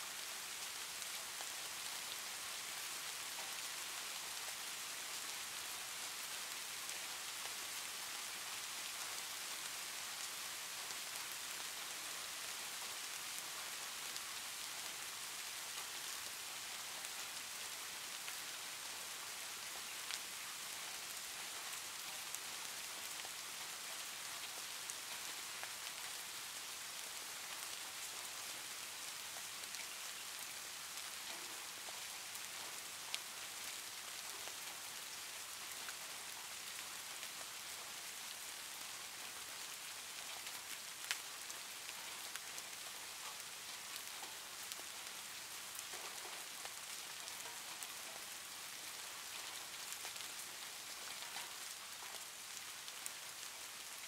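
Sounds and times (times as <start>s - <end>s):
falling rain hiss: 0.0s - 54.0s
faint ticks: 31.2s - 33.3s, 51.0s - 52.2s.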